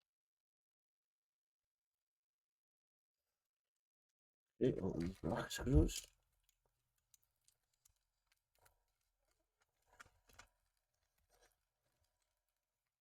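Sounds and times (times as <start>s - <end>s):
small parts clicking and rustling: 5.0s - 13.0s.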